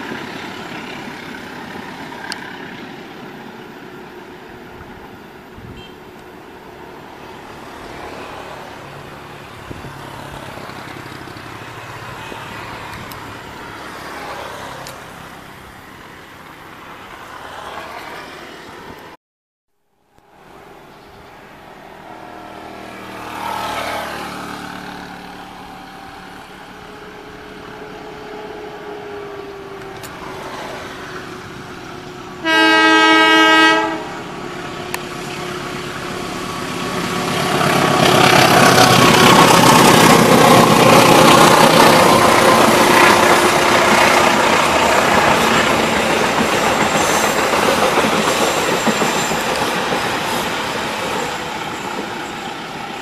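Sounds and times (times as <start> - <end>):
wheel-on-rail noise and clatter: 0.0 - 5.5, 6.1 - 19.1, 34.5 - 53.0
diesel locomotive engine running: 20.1 - 53.0
train horn blast: 32.4 - 34.5.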